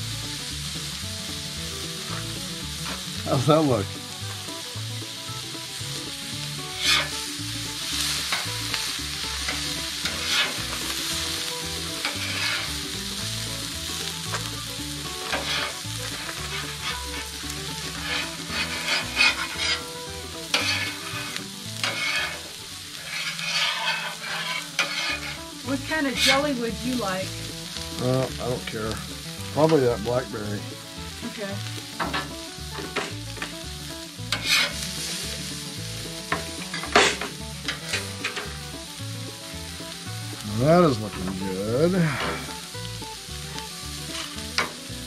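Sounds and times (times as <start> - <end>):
omelette sizzling in a pan: 0.0 - 45.0
utensil scraping and knocking pan: 6.8 - 7.2, 9.4 - 10.7, 12.0 - 12.7, 15.2 - 17.2, 17.8 - 19.9, 20.5 - 25.4, 34.3 - 34.9, 36.3 - 38.5.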